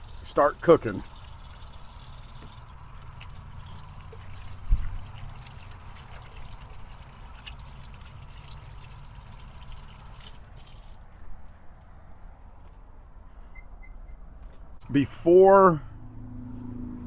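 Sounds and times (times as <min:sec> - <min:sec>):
hands washing under tap water: 0:00.0 - 0:11.1
dull thump: 0:04.6 - 0:05.0.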